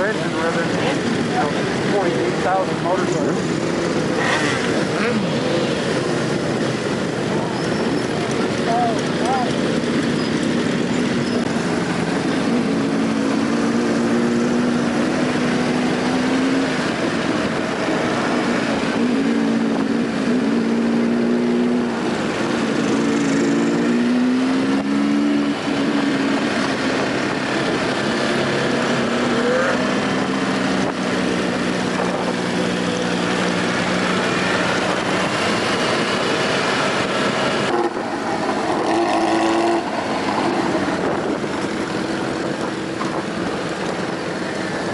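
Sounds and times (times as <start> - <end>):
motorcycle engines revving: 0.0 - 44.9.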